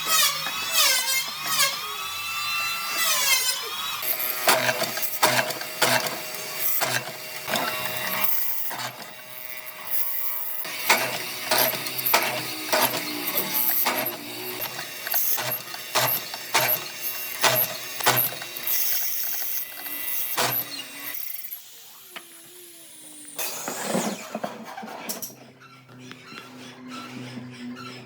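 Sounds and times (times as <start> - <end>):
mechanism clicking and knocking: 10.7 - 21.2.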